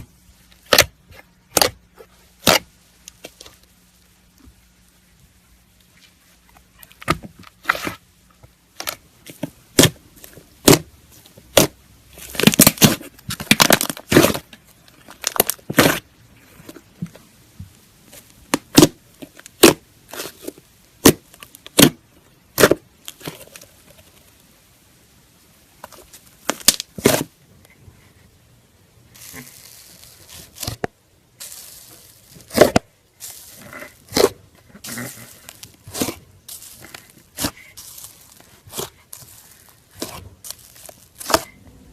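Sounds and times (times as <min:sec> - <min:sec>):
slime popping and crackling: 0:00.5 - 0:04.1, 0:08.7 - 0:16.0, 0:18.3 - 0:24.4, 0:25.9 - 0:27.3, 0:29.1 - 0:41.9.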